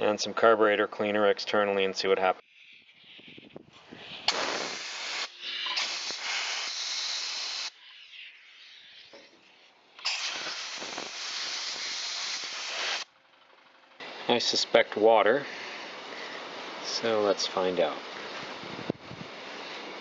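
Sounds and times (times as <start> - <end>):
aerosol spray hissing: 4.0 - 7.8, 10.0 - 13.1.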